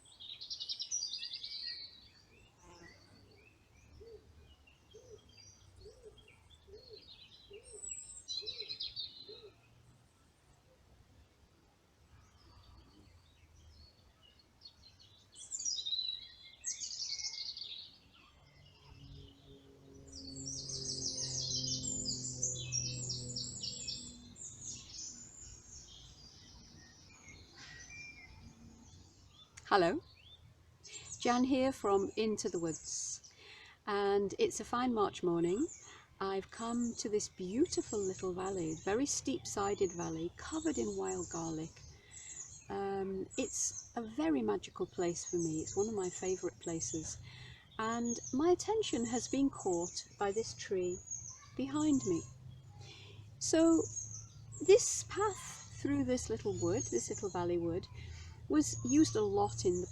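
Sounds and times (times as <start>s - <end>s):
songbird trilling: 14.6s - 33.3s, 35.4s - 59.9s
songbird singing rapid high notes: 15.4s - 33.3s.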